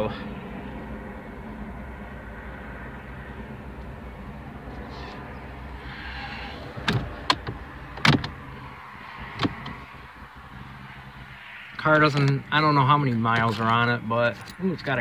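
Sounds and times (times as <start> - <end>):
car interior parts clicking: 6.0 - 10.3, 11.8 - 12.5.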